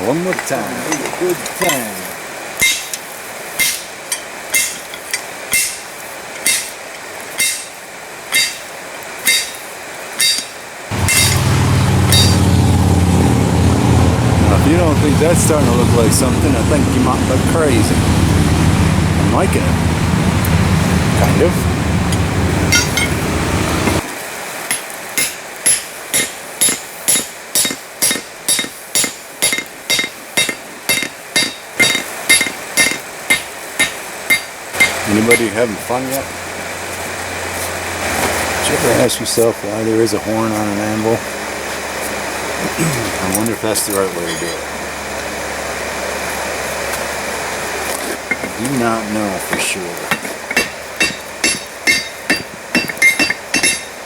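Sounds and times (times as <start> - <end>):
hammer striking steel on anvil: 2.6 - 3.0, 3.6 - 6.8, 7.4 - 9.6, 10.2 - 12.5, 22.1 - 23.2, 24.7 - 35.5, 49.5 - 54.0
motor humming: 10.9 - 24.0.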